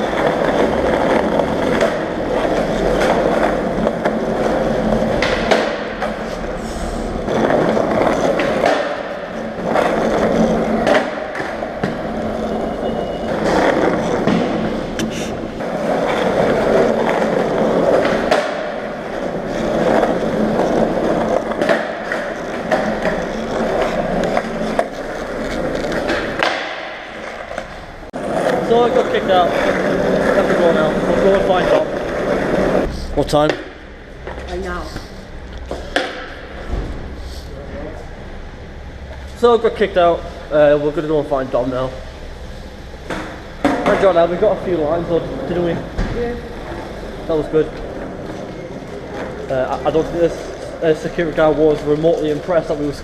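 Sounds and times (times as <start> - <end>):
skateboard clacks: 0.0 - 6.5, 7.2 - 12.5, 13.3 - 33.8
skateboard wheels rolling on asphalt: 0.0 - 34.5, 38.0 - 53.0.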